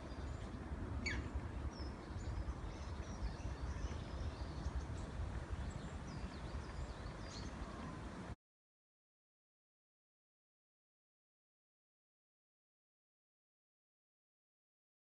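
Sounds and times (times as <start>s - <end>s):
low outdoor rumble: 0.0s - 8.4s.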